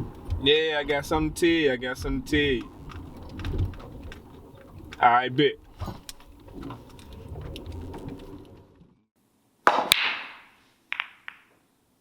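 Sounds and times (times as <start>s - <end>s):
billiard balls clacking: 9.7s - 11.5s.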